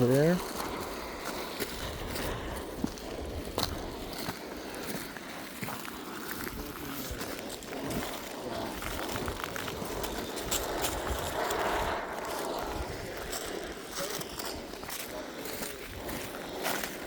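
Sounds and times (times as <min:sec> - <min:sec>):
footsteps crunching on rock: 0:00.0 - 0:17.0
wind buffeting microphone: 0:00.0 - 0:17.0.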